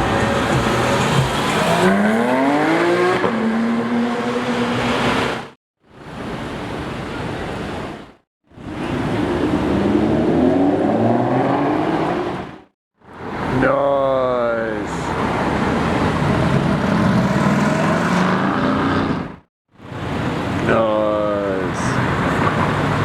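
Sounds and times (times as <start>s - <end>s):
car engine accelerating hard: 0.0s - 5.4s, 15.6s - 19.4s.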